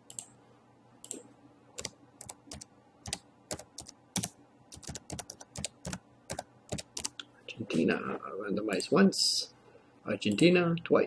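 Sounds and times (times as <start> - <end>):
computer keyboard key clicks: 1.8 - 7.2.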